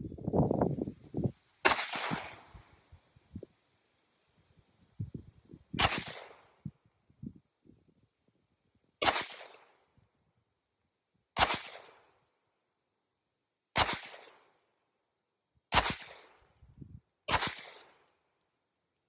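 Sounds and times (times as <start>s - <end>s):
gunshots with echo: 1.6s - 2.5s.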